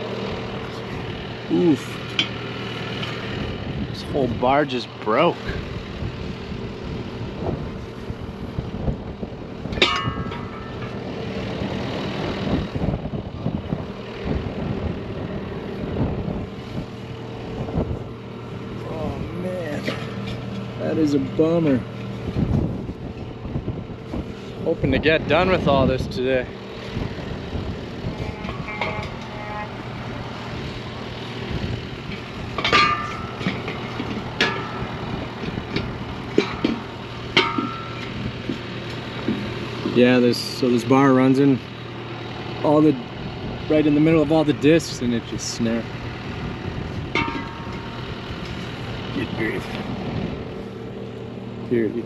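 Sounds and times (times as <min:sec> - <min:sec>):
tractor engine idling: 0:00.0 - 0:52.0
metal parts clanking: 0:09.7 - 0:11.0, 0:32.1 - 0:38.6
sharp ringing metal knocks: 0:09.7 - 0:11.0, 0:28.3 - 0:29.4, 0:32.1 - 0:39.4, 0:47.1 - 0:48.2.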